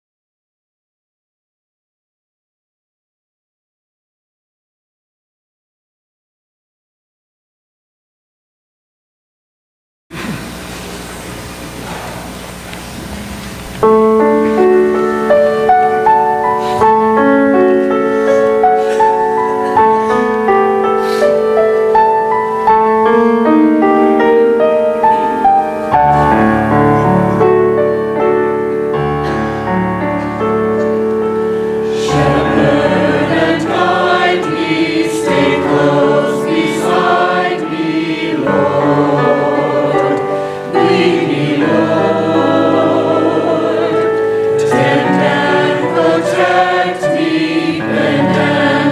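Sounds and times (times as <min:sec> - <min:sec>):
instrumental accompaniment: 0:13.8 - 0:48.9
choir singing: 0:13.9 - 0:28.6, 0:31.8 - 0:48.9.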